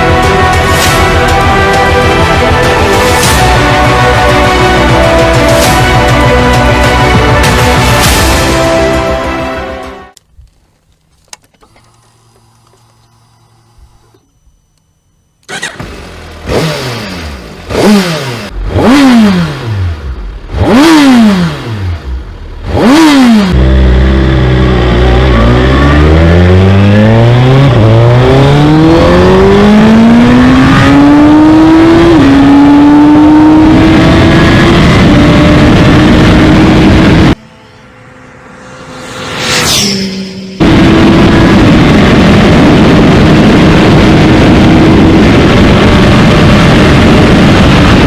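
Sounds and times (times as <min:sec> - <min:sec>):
motorcycle engine revving: 0:15.5 - 0:48.0.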